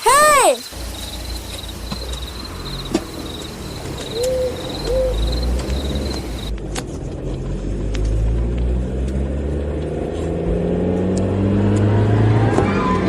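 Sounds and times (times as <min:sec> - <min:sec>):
crickets chirping: 0:00.0 - 0:06.5
car engine running: 0:00.7 - 0:11.3
owl hooting: 0:00.8 - 0:06.5.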